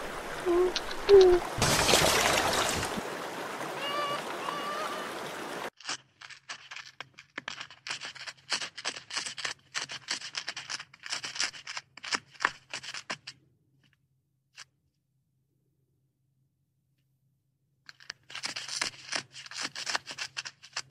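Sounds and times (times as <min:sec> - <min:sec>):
water noise: 0:00.0 - 0:05.8
animal crunching and gnawing food: 0:05.8 - 0:13.4, 0:17.9 - 0:20.9.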